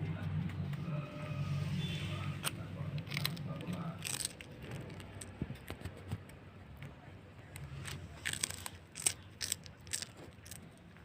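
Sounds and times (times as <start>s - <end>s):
cat chewing crunchy snack: 2.9s - 5.4s, 7.9s - 11.0s.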